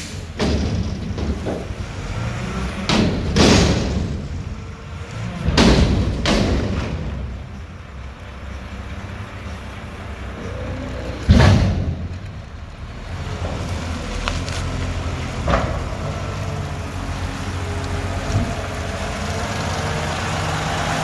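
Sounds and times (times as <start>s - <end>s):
loud bangs: 0.0s - 8.5s, 11.2s - 14.0s
garbage truck diesel engine: 0.0s - 21.0s.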